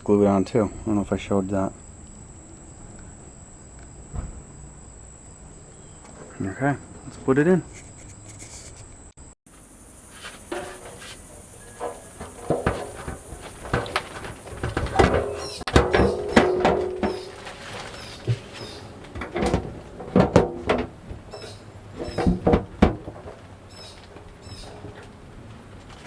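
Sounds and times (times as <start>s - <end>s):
hands fitting rubber seal: 7.7s - 9.0s.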